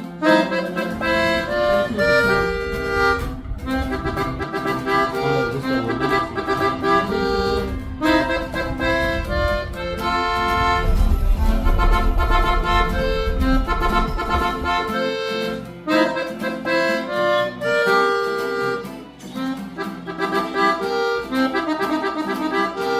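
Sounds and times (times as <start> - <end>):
lively accordion music: 0.0 - 22.9.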